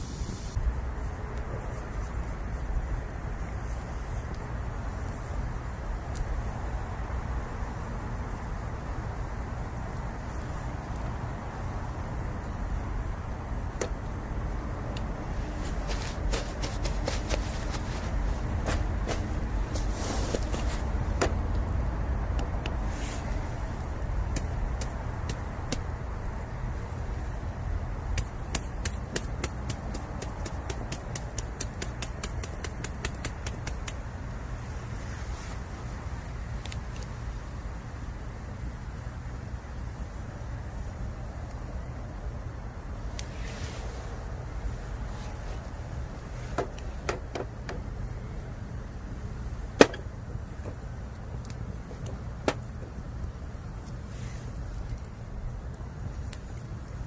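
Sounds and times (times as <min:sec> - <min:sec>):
steady low rumble: 0:00.0 - 0:32.4
campfire crackling and popping: 0:00.1 - 0:57.0.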